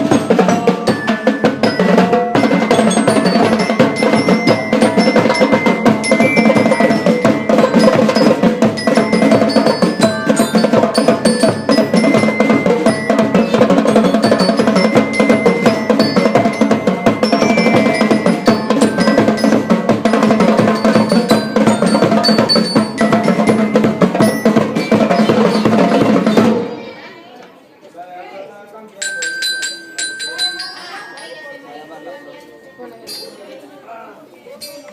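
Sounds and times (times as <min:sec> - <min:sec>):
high bell melody: 0:00.0 - 0:26.5, 0:29.0 - 0:33.7
marching band drums and percussion: 0:00.0 - 0:26.9.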